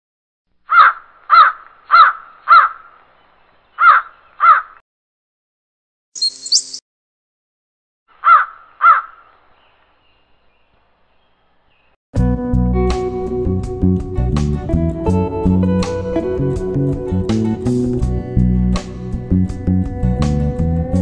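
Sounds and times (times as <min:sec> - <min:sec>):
bird calling: 0:00.7 - 0:04.8, 0:06.2 - 0:06.8, 0:08.2 - 0:12.0.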